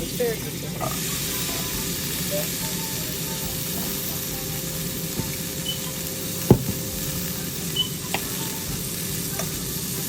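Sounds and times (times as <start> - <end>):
vegetables sizzling in a pan: 0.0 - 10.0
sharp knock: 6.5 - 6.9.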